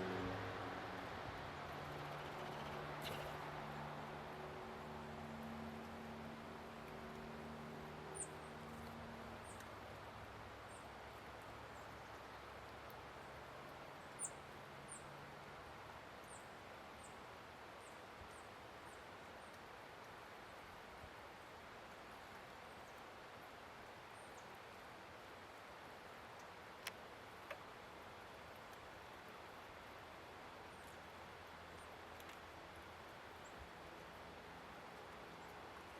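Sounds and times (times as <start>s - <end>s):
faint outdoor hiss: 0.0s - 35.9s
songbirds chipping: 1.6s - 4.2s, 6.6s - 20.7s, 29.0s - 35.9s.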